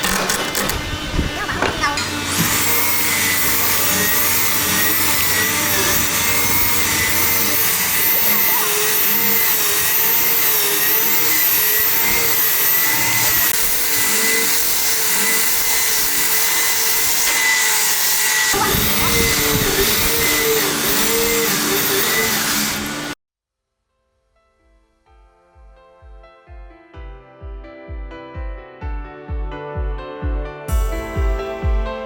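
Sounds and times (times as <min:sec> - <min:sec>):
electric power tool motor running: 0:00.0 - 0:23.2, 0:30.7 - 0:32.0.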